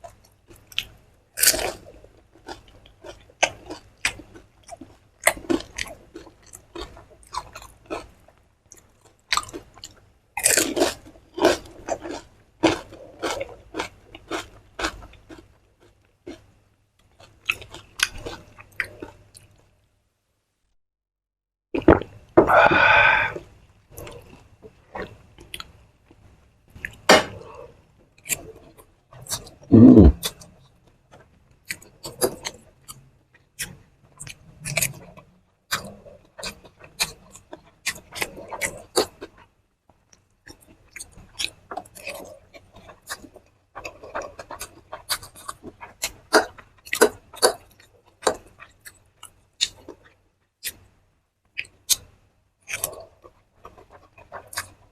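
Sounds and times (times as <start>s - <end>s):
person crunching and chewing: 0.5s - 8.1s, 8.8s - 16.5s, 17.1s - 19.5s, 21.8s - 27.4s, 40.5s - 50.8s, 52.6s - 54.9s
short voice sound: 29.7s - 30.2s.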